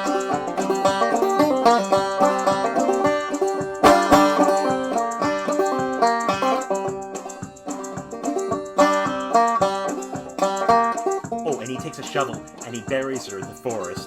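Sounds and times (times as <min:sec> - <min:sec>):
banjo picking and strumming: 0:00.0 - 0:14.0.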